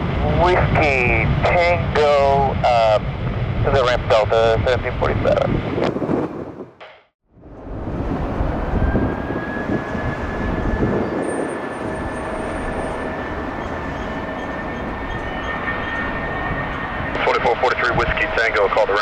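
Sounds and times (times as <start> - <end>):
jet engines roaring: 0.0 - 6.4, 7.4 - 19.0
high steady engine whine: 7.6 - 19.0.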